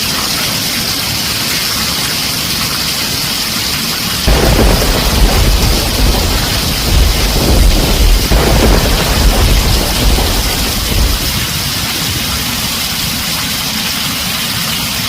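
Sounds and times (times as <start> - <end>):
heavy rain on a tin roof: 0.0 - 15.0
deep thunder rumble: 4.2 - 13.8.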